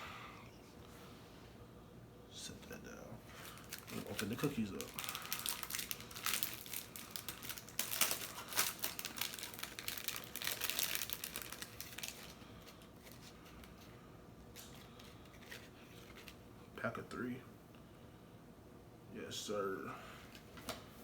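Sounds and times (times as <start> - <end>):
packaging crinkling and rustling: 3.3 - 16.4.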